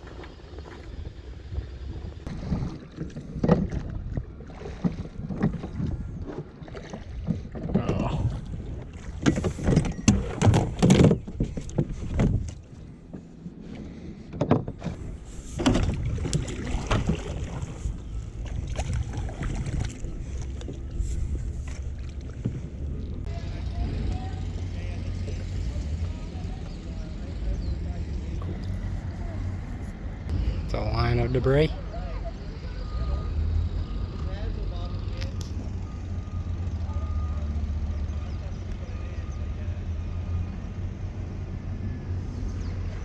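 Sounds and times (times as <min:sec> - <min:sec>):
low rumble: 0:00.0 - 0:14.2, 0:14.9 - 0:43.0
water splashing and sloshing: 0:00.0 - 0:43.0
knocks against boat: 0:08.9 - 0:13.2, 0:14.3 - 0:15.0, 0:15.6 - 0:17.7.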